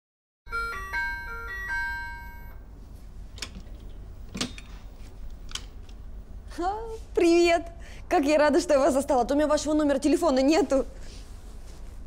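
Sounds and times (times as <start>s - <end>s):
electronic doorbell melody: 0.5s - 2.7s.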